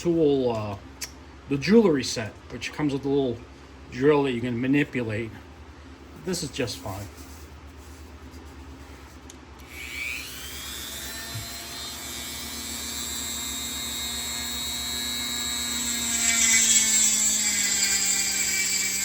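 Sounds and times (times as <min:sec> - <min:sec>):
rotary tool whining: 0:09.6 - 0:19.0.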